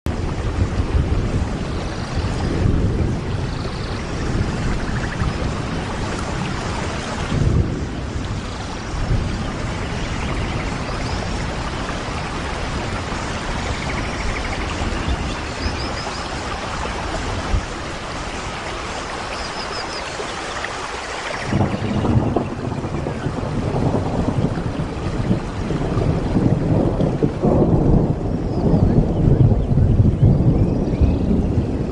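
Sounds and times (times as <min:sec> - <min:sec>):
thunder rumbling: 0:00.1 - 0:19.6, 0:21.4 - 0:31.9
heavy rain falling: 0:00.1 - 0:31.9.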